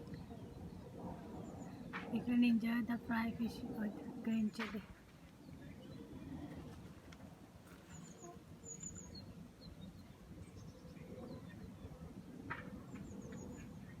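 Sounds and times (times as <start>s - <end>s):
small bird chirps: 7.7s - 11.7s.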